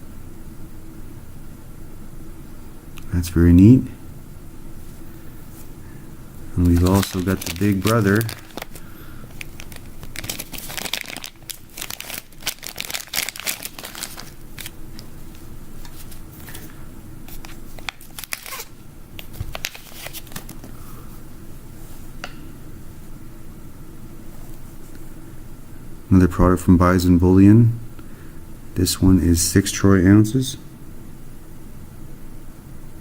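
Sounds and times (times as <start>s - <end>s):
packaging crinkling and tearing: 6.6s - 20.7s.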